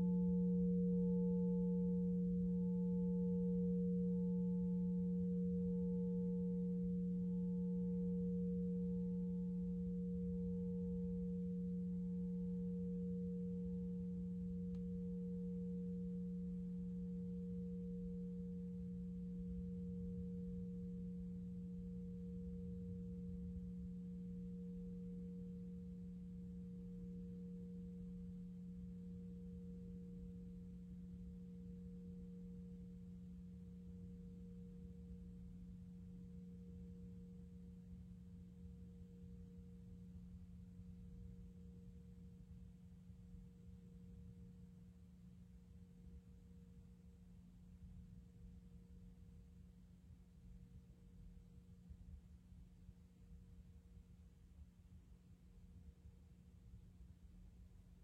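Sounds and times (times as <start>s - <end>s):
crystal singing bowl ringing: 0.0s - 42.6s.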